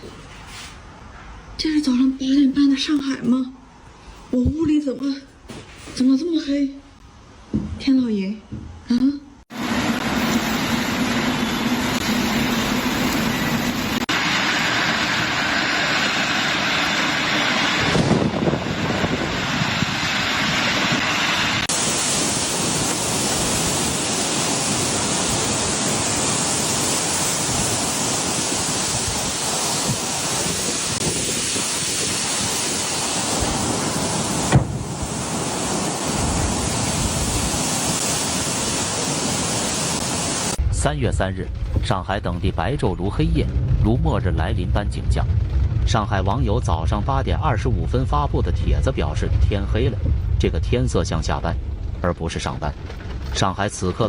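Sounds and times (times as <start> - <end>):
heavy rain and wind: 9.5 - 54.0
sharp knock: 34.5 - 34.8.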